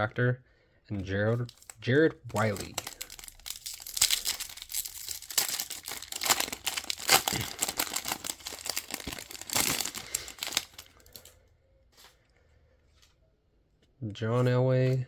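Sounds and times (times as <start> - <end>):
plastic wrapper crinkling and tearing: 1.3 - 11.3.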